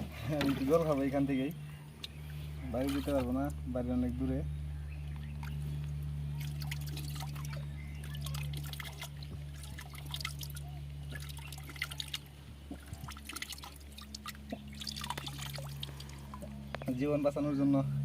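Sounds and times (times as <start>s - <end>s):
water dripping and splashing: 2.0s - 4.2s, 5.2s - 17.0s.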